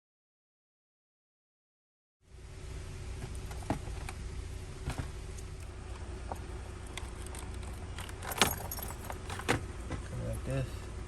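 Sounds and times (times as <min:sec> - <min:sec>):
steady low hum: 0:02.2 - 0:11.0.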